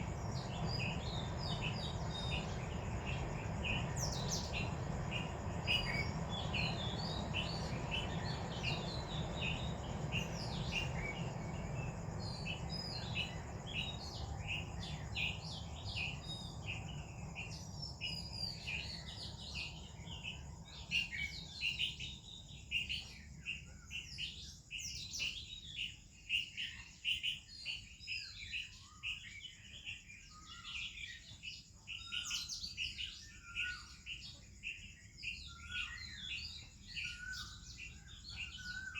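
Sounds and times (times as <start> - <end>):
low background rumble: 0.0 - 21.8
songbirds chirping and singing: 0.0 - 38.9.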